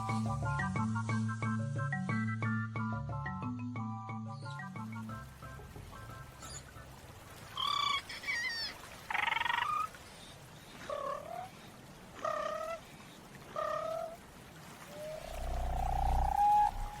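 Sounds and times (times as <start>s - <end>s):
long rising call: 14.9s - 17.0s
low rumble: 15.3s - 17.0s.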